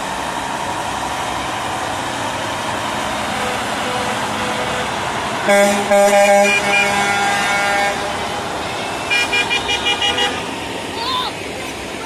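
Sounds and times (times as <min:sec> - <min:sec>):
passing traffic hum: 0:00.0 - 0:12.0
truck horns honking: 0:02.5 - 0:12.0
short higher horn toots: 0:05.5 - 0:10.5.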